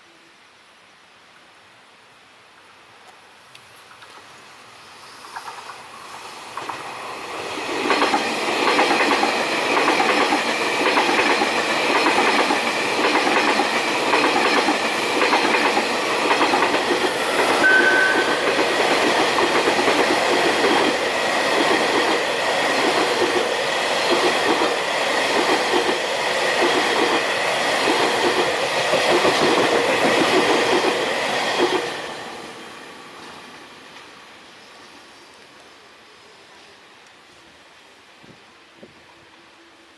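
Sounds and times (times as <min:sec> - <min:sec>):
train wheels clattering: 0:05.2 - 0:32.0
high squeal: 0:17.2 - 0:19.0.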